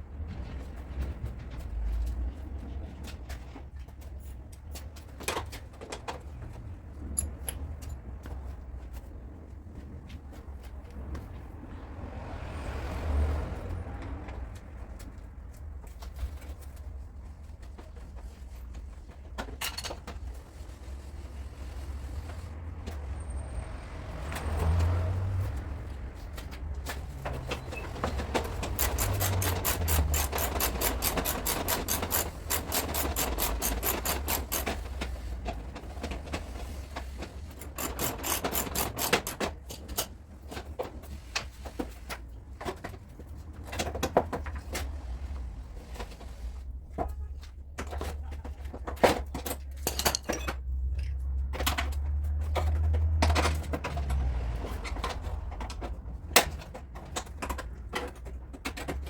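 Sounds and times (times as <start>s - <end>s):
filing strokes on metal: 28.4s - 34.7s, 37.6s - 39.4s.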